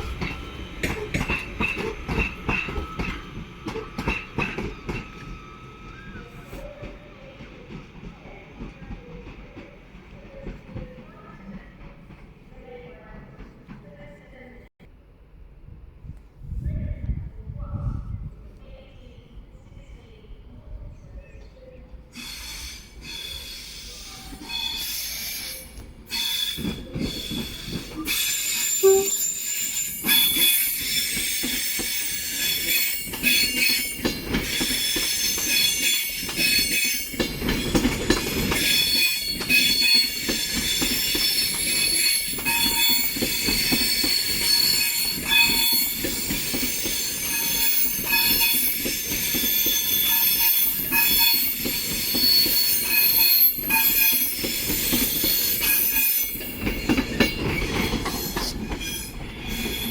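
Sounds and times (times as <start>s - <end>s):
train wheels squealing on rails: 0.0s - 11.9s, 22.1s - 59.9s.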